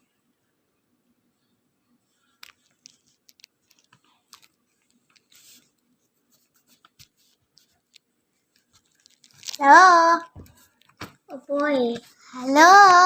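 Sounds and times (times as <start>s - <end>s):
soft rustle: 1.4s - 12.6s
faint clicks and taps: 2.1s - 9.6s, 10.2s - 13.0s.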